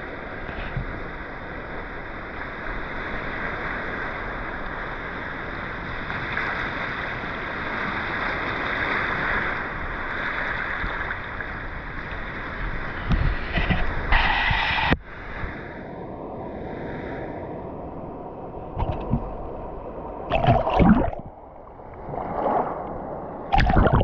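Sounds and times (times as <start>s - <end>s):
rushing water: 18.8s - 19.5s, 20.2s - 24.0s.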